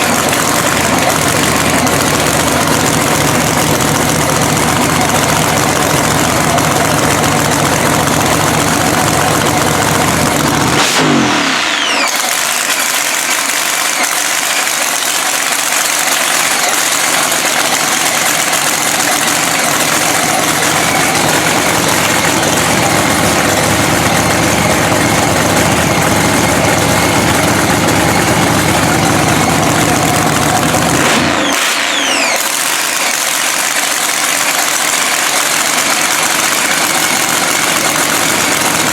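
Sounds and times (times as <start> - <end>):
drag racing engine idling: 0.0 - 38.9.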